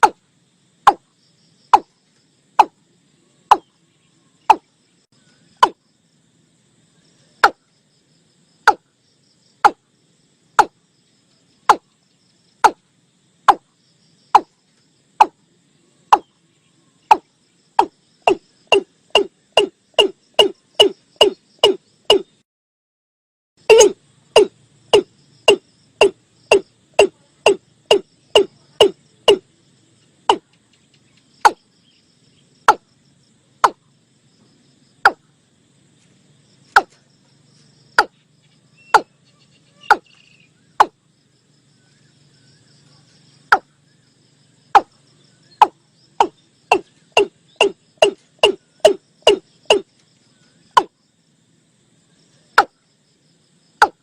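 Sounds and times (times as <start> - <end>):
watercock knocking calls: 17.8 - 22.3, 23.7 - 29.4, 45.6 - 49.8.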